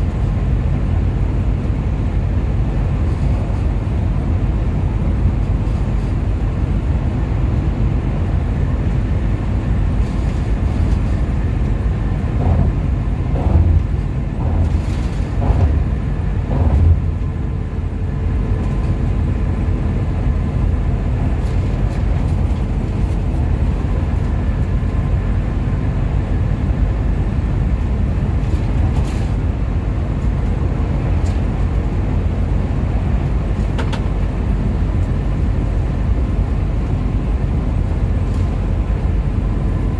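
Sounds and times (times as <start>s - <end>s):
bus engine and road rumble: 0.0s - 39.9s
short knocks: 12.4s - 17.3s.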